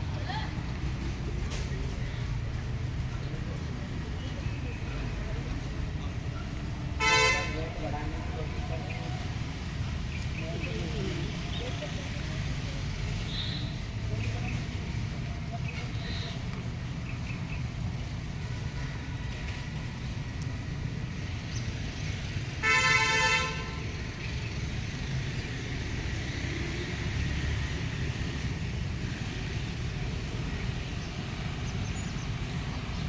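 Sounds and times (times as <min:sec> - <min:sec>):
street noise rumble: 0:00.0 - 0:33.0
horn honking: 0:07.0 - 0:07.8, 0:22.6 - 0:24.0.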